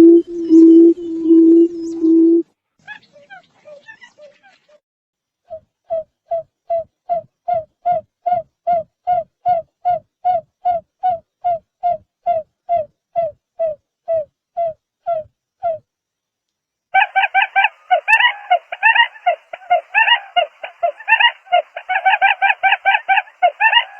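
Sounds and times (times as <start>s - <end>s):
bird hooting call: 0.0s - 3.4s, 17.0s - 23.9s.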